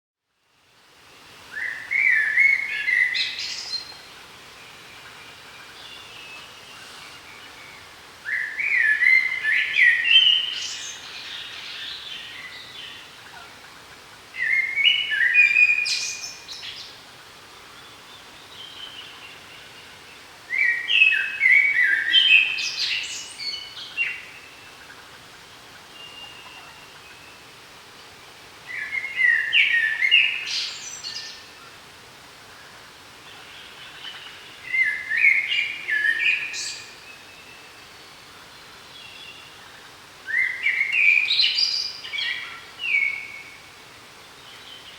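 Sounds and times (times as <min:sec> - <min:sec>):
faint bird calls: 0:17.6 - 0:27.5, 0:32.5 - 0:43.7
songbird chirping phrases: 0:28.2 - 0:31.5, 0:33.3 - 0:44.9.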